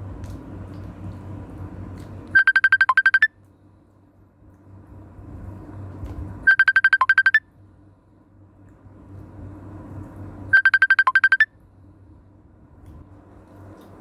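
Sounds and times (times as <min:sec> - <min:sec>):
phone ringtone beeps: 0:02.4 - 0:03.3, 0:06.5 - 0:07.4, 0:10.6 - 0:11.5.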